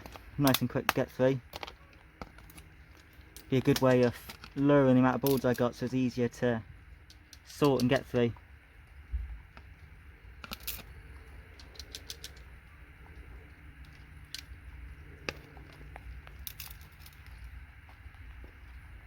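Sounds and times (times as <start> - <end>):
small hard parts clicking: 0.0 - 5.9, 6.9 - 8.2, 9.5 - 18.8
low steady rumble: 0.0 - 19.0.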